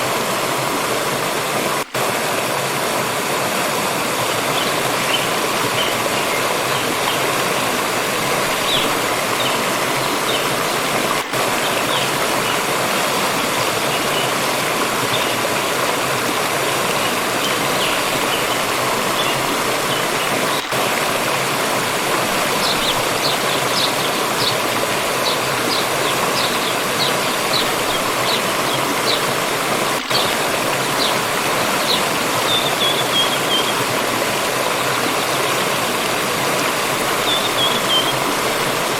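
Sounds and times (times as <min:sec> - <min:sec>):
water rushing over rocks: 0:00.0 - 0:38.9
small birds chirping: 0:22.5 - 0:29.4.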